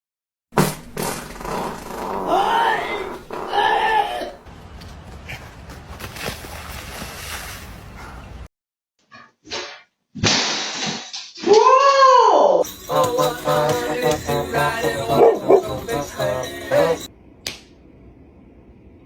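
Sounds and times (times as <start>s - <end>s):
dog crying: 1.4s - 4.4s.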